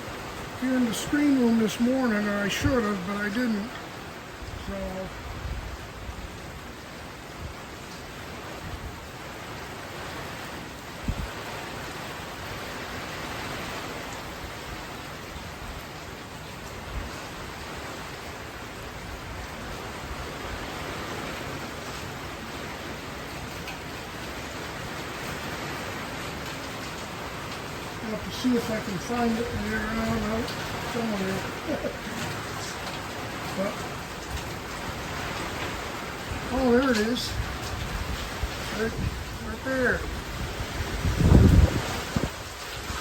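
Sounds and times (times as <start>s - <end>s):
heavy rain: 0.0s - 43.0s
gusty wind rumbling: 4.0s - 15.9s, 23.0s - 43.0s.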